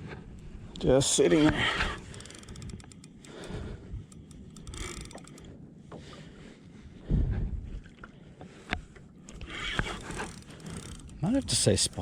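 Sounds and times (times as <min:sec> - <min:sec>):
camera mount clicks: 0:01.5 - 0:05.4
water noise: 0:01.8 - 0:05.5
wind rumble on microphone: 0:06.8 - 0:08.0.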